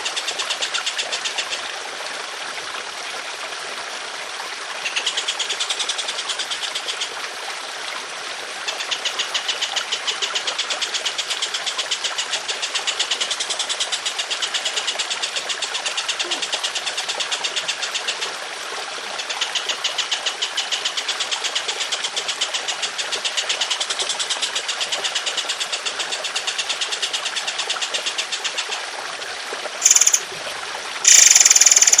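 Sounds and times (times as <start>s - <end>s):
running water trickling: 0.0s - 32.0s
bird rattling trill: 29.8s - 30.2s, 31.0s - 32.0s.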